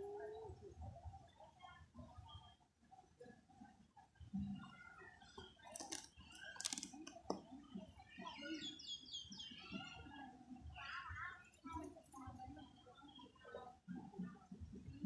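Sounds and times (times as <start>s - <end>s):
bird chirping: 8.2s - 10.1s.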